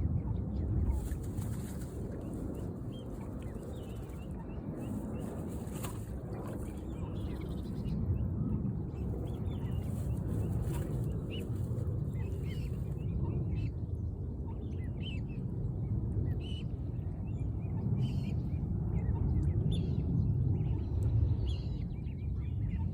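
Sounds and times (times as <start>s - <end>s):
low outdoor rumble: 0.0s - 22.9s
birds chirping: 0.2s - 13.7s.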